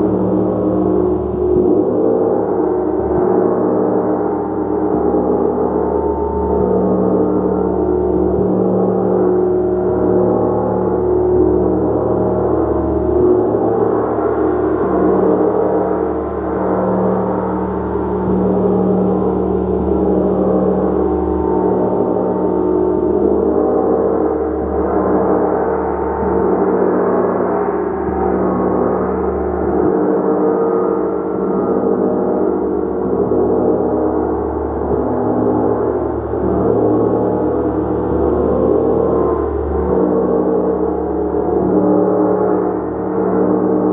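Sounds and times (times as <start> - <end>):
gong ringing: 32.8 - 43.9.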